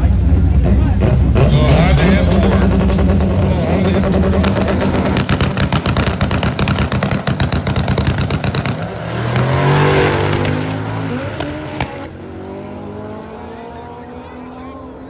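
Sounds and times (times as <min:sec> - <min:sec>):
race car engine popping on limiter: 0:02.3 - 0:12.1.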